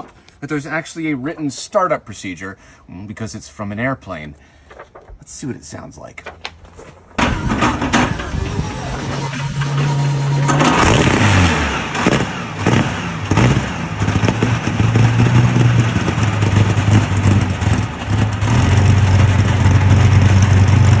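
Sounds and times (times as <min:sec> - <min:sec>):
aero engine revving and idling: 0:07.2 - 0:21.0.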